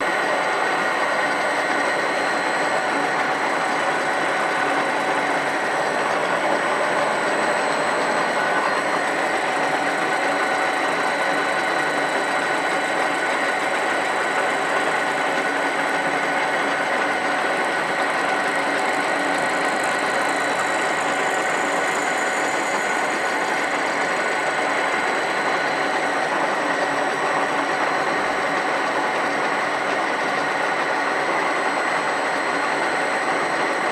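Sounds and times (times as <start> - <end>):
machine whirring: 0.0 - 33.9.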